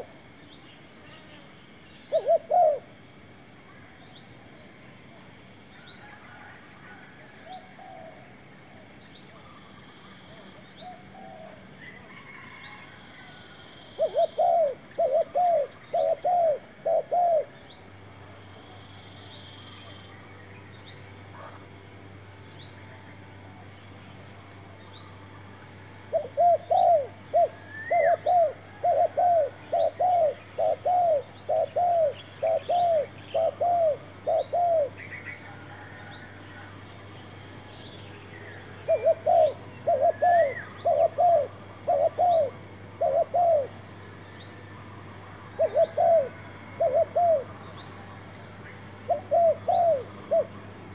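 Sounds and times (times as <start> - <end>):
dove cooing: 2.1 - 2.9, 14.0 - 17.6, 26.1 - 36.6, 38.8 - 43.8, 45.5 - 47.7, 49.0 - 50.6.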